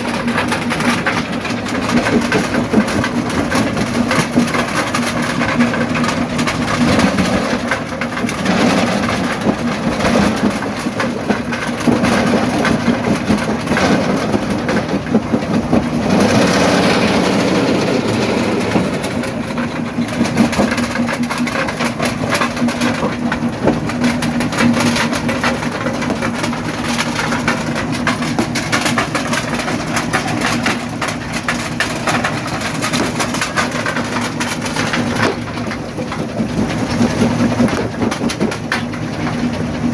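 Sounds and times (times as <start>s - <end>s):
jaw crusher engine drone: 0.0s - 39.9s
rock grinding and cracking: 0.0s - 39.9s.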